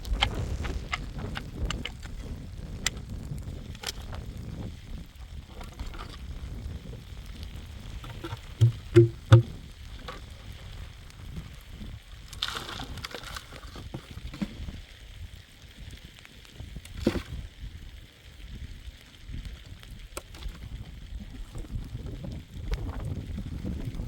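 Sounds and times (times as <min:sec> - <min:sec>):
dull heavy thumps: 0:08.2 - 0:09.6.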